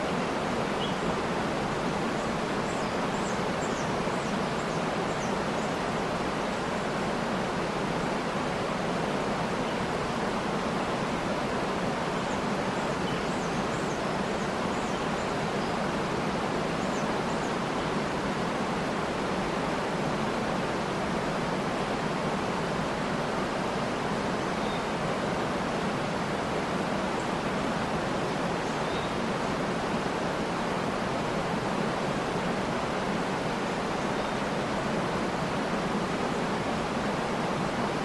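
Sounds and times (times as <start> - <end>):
waterfall rushing: 0.0 - 38.0
faint high bird chirps: 24.6 - 24.9.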